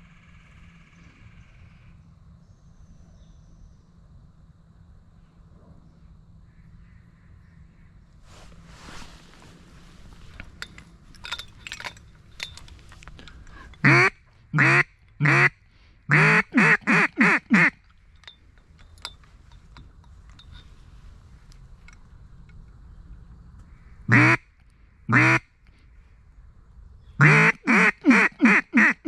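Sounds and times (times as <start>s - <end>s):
duck call quacks: 13.8s - 17.8s, 24.1s - 24.5s, 25.1s - 25.5s, 27.2s - 29.0s.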